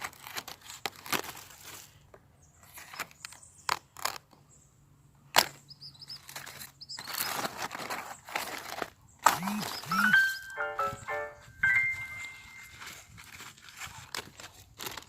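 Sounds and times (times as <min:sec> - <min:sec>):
plants snapping and rustling: 0:00.0 - 0:02.0, 0:02.7 - 0:04.4, 0:12.8 - 0:15.0
faint high chirps: 0:09.4 - 0:13.0.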